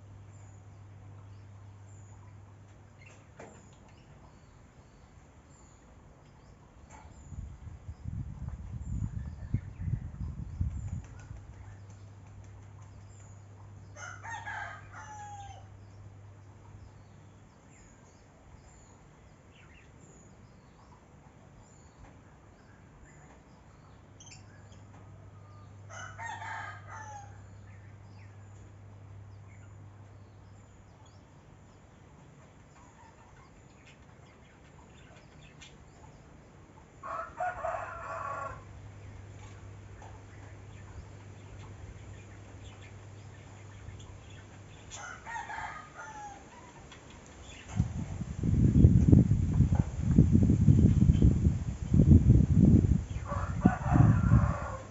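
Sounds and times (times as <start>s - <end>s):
rooster crowing: 14.0s - 15.7s, 25.9s - 27.4s, 37.0s - 38.7s, 45.0s - 46.6s, 53.1s - 54.9s.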